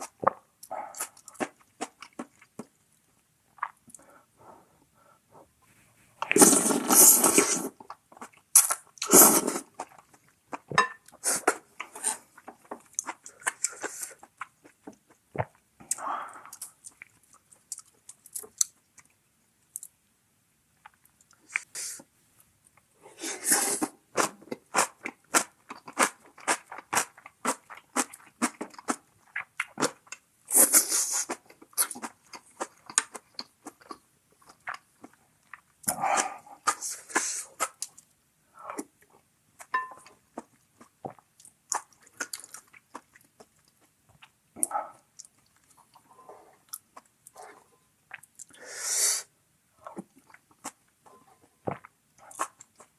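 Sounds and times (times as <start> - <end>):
wet chewing and crunching: 0.0 - 2.8, 24.2 - 30.2, 31.2 - 36.8, 39.6 - 47.4, 49.8 - 52.9.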